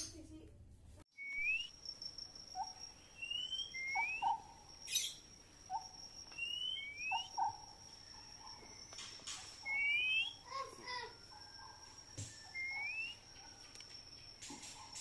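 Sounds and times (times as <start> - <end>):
songbird whistling rising notes: 1.2 - 1.8, 2.6 - 10.6, 12.2 - 13.6
bird chirps: 1.2 - 15.0.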